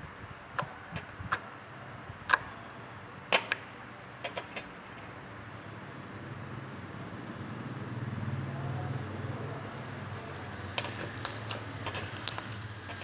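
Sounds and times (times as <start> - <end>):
slime clicks and pops: 11.0 - 11.6.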